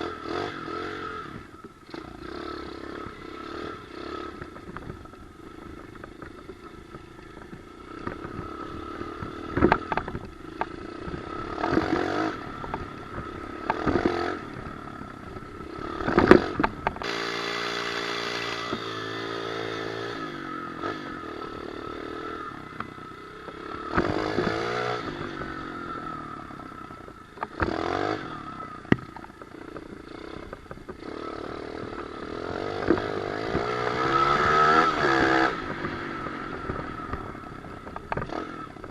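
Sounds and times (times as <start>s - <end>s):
pit bike engine revving: 0.0s - 38.9s.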